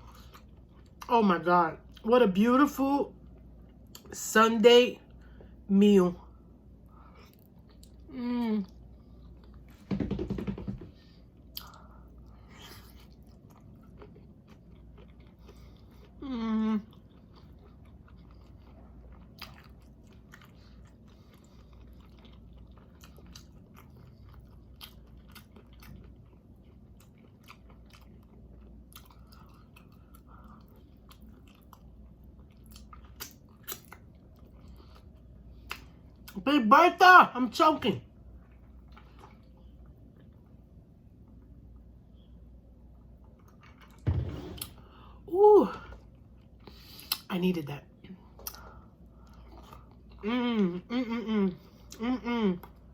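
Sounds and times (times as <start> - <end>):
person chewing: 7.0 - 9.7, 11.4 - 36.4, 48.3 - 52.9
dull thump: 9.8 - 11.0, 44.0 - 44.8.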